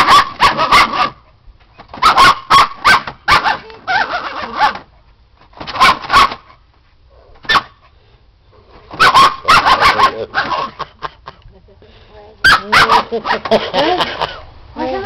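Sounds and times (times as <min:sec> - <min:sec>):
small dog barking: 0:00.0 - 0:01.2, 0:02.0 - 0:04.8, 0:05.7 - 0:06.5, 0:07.4 - 0:07.8, 0:08.9 - 0:10.8, 0:12.4 - 0:13.5.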